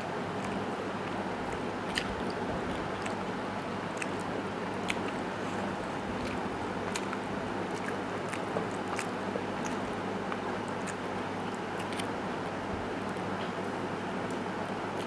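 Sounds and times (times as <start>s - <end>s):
person chewing food: 0.0s - 12.7s
steady background hum: 0.0s - 15.0s
wet mouth clicks and smacks: 0.4s - 12.1s.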